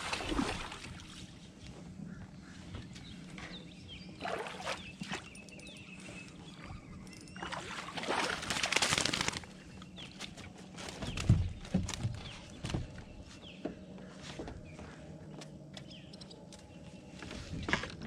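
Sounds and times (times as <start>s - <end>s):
water sloshing: 0.0s - 1.5s, 4.2s - 5.6s, 7.4s - 9.4s.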